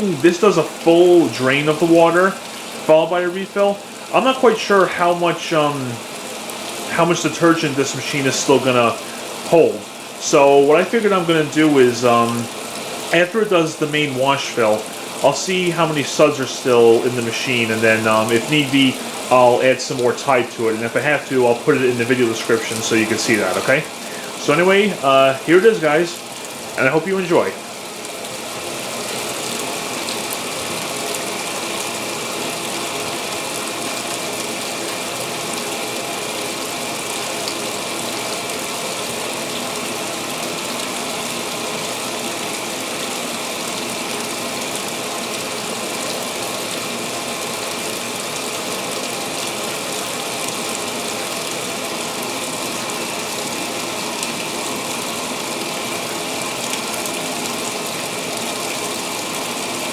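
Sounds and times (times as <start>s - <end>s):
washing machine filling with water: 0.0s - 59.9s.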